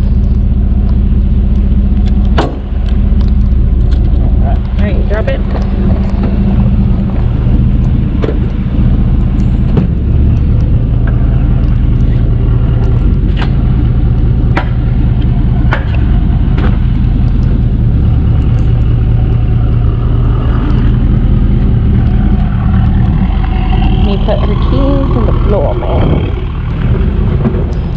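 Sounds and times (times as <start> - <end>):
tow truck engine humming: 0.0 - 27.9
sharp clicks and knocks: 9.3 - 17.7.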